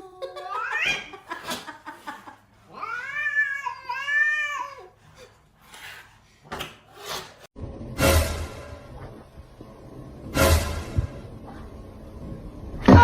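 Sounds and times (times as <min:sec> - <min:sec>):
cat meowing: 0:02.7 - 0:04.8.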